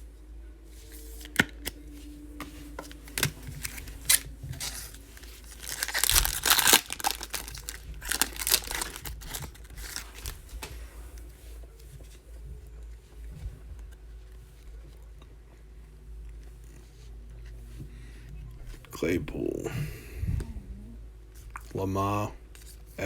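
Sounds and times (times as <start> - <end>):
cards being handled: 0.8 - 12.2
foil wrapper tearing: 2.8 - 10.5
foil wrapper crinkling: 2.8 - 10.7.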